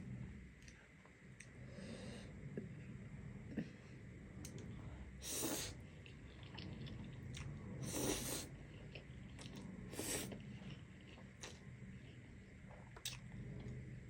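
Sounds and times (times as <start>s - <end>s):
chewing with mouth clicks: 5.9s - 13.8s.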